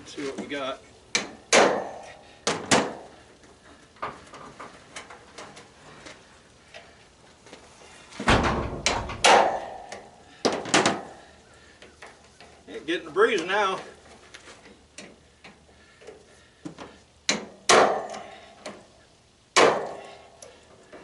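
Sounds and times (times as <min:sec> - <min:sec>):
loud thump: 0:08.2 - 0:09.8.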